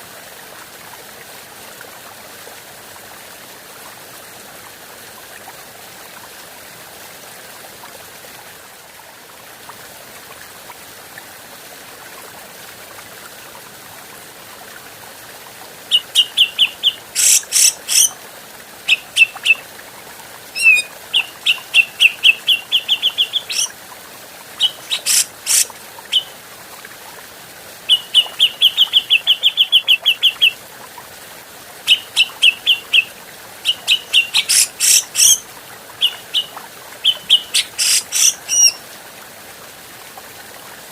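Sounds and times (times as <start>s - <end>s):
bird chattering song: 15.9s - 18.1s, 20.6s - 23.7s, 24.6s - 26.3s, 33.7s - 35.4s, 36.0s - 38.8s
loud sharp bird calls: 15.9s - 18.1s, 20.6s - 23.7s, 24.6s - 26.3s, 33.7s - 35.4s, 36.0s - 38.8s.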